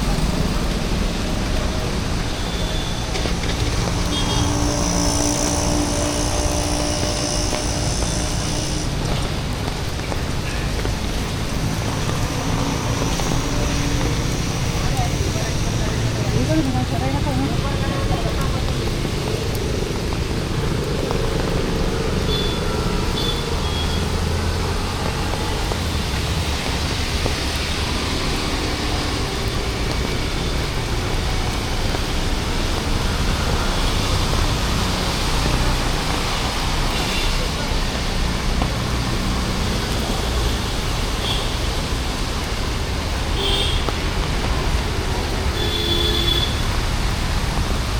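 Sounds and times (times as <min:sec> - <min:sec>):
passing vehicle engine hum: 0:00.0 - 0:10.1
traffic on a wet road: 0:00.0 - 0:47.9.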